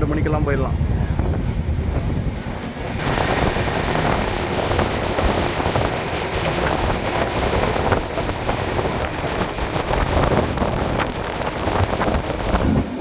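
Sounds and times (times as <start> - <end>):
train wind and rail noise: 0.0 - 13.0
rapid rattling and clicking: 3.0 - 13.0.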